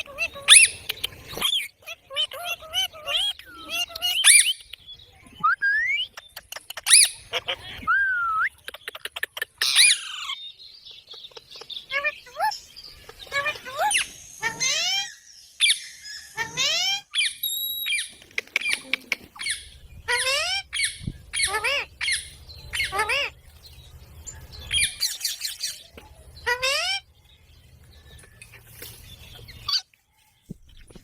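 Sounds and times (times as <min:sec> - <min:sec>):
parakeet shrill calls: 0:00.0 - 0:04.6, 0:06.8 - 0:07.5, 0:09.6 - 0:10.4, 0:11.9 - 0:18.8, 0:19.4 - 0:23.4, 0:26.4 - 0:27.0.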